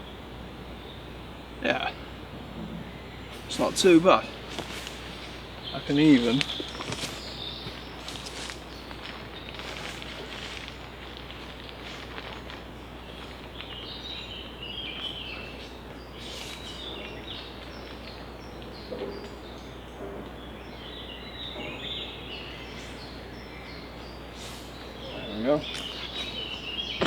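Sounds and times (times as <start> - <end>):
background hiss: 0.0 - 27.0
small birds chirping: 0.0 - 27.0.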